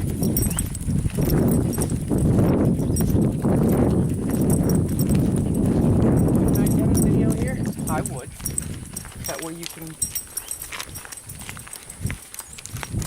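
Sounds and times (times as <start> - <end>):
low rumble on microphone: 0.0 - 9.3
footsteps on paved path: 0.0 - 13.0.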